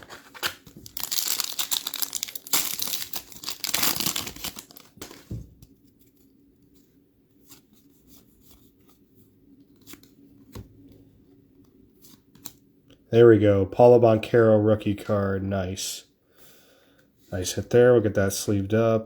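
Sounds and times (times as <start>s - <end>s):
wrapper tearing and crinkling: 0.0s - 5.3s.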